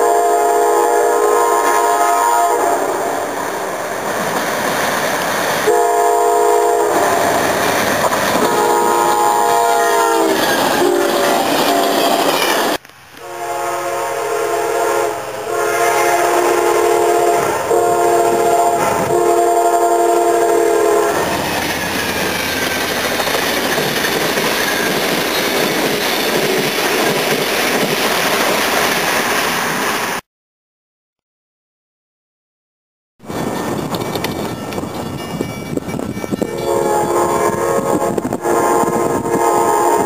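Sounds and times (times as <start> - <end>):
locomotive air horn blasts: 0.0 - 3.2, 5.6 - 7.3, 8.4 - 12.0, 13.2 - 21.4, 36.4 - 40.0
train wheels rumbling on rail: 1.1 - 30.2, 33.2 - 40.0.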